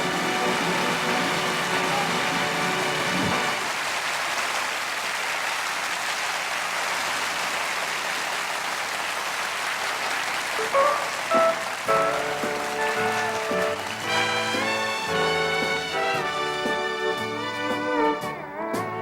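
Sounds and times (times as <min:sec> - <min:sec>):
audience applauding: 0:00.0 - 0:17.8
short instrument notes: 0:10.6 - 0:17.2.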